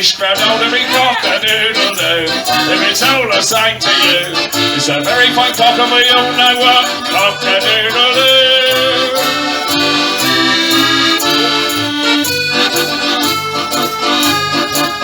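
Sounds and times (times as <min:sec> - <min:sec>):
person singing: 0:00.0 - 0:14.9
bouncing bass line: 0:00.0 - 0:15.0
squeezebox chords: 0:00.0 - 0:15.0.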